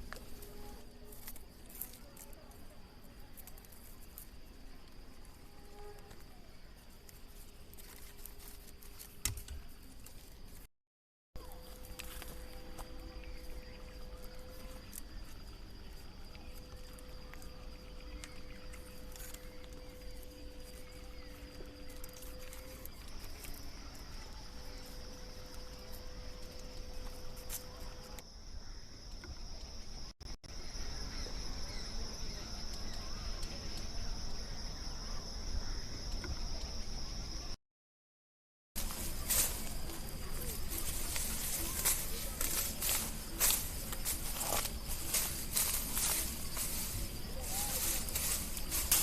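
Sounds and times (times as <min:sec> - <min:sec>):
insects shrilling: 0:11.4 - 0:28.8, 0:38.8 - 0:49.0.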